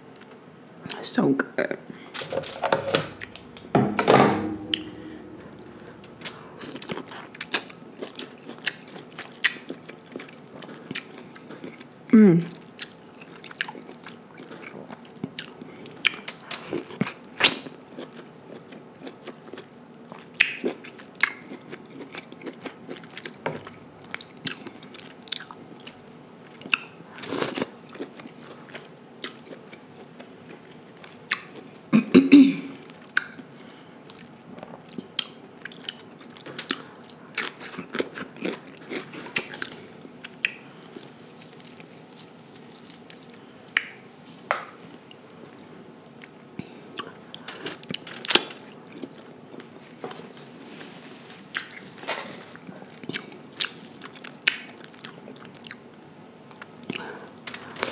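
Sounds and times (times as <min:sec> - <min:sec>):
chewing and wet mouth sounds: 0:04.9 - 0:31.7, 0:32.8 - 0:49.8, 0:51.5 - 0:57.9.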